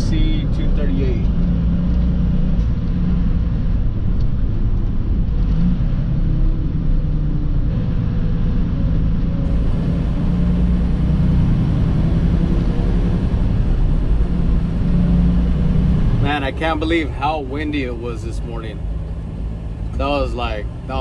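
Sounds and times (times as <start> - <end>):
truck engine rumbling: 7.8 - 21.0.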